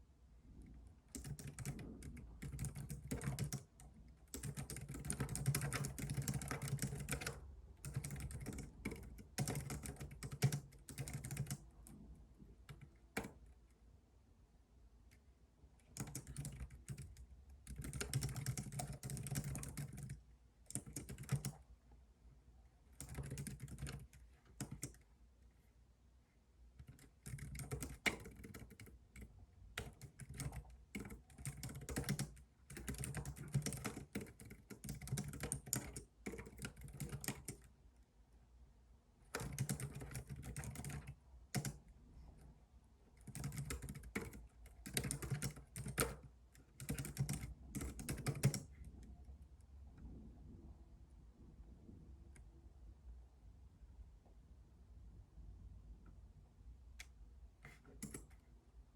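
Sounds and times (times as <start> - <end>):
keyboard typing: 1.1 - 12.0, 12.6 - 13.6, 15.8 - 21.6, 22.9 - 25.0, 26.8 - 37.7, 39.3 - 41.8, 43.2 - 48.8, 57.0 - 58.4.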